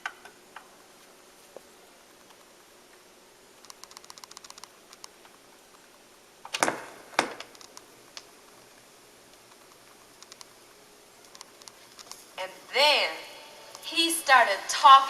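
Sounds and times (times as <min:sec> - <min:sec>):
turntable mechanism clicks: 0:03.6 - 0:05.3, 0:07.4 - 0:08.3, 0:09.4 - 0:10.5, 0:11.2 - 0:12.2.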